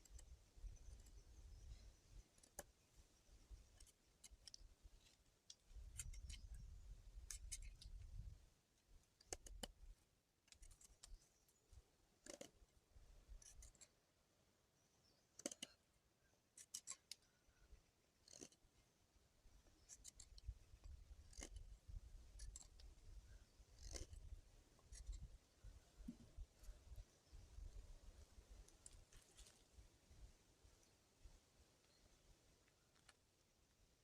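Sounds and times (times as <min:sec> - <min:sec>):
handling clicks and snips: 0:02.2 - 0:02.8, 0:03.6 - 0:06.6, 0:07.2 - 0:08.1, 0:09.2 - 0:09.8, 0:10.4 - 0:11.2, 0:12.2 - 0:12.6, 0:13.3 - 0:14.0, 0:15.3 - 0:15.8, 0:16.5 - 0:17.4, 0:18.2 - 0:18.6, 0:19.7 - 0:25.3.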